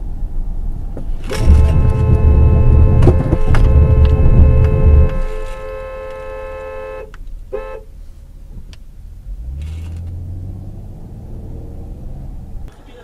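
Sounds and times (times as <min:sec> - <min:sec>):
vehicle engine drone: 0:00.0 - 0:13.0
car horn honking: 0:01.2 - 0:08.0.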